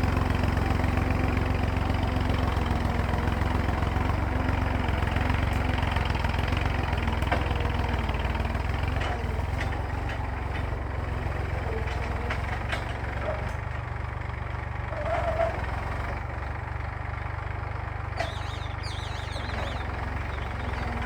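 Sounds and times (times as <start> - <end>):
tractor diesel engine rumbling: 0.0 - 21.0.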